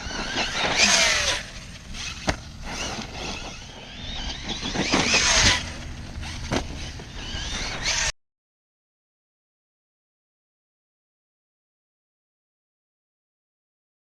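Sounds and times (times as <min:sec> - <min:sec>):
electric motor whine: 0:00.0 - 0:08.1.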